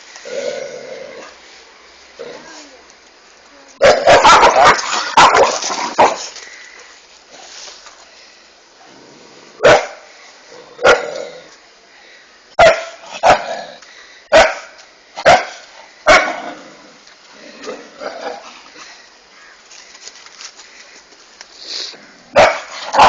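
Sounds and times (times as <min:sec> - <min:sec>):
dog barking: 0:03.8 - 0:06.2, 0:09.6 - 0:10.0, 0:10.8 - 0:11.1, 0:12.6 - 0:13.5, 0:14.3 - 0:16.4, 0:22.3 - 0:23.0.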